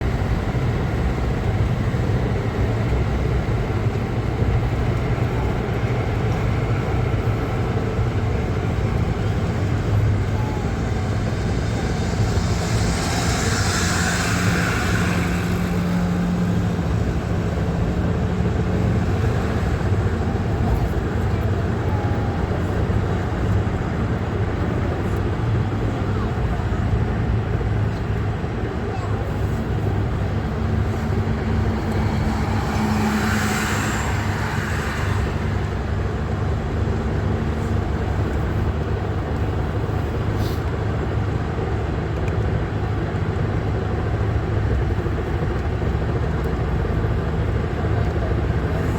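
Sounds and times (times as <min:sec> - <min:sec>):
road and engine rumble: 0:00.0 - 0:48.9
louder rushing sound: 0:09.6 - 0:19.8.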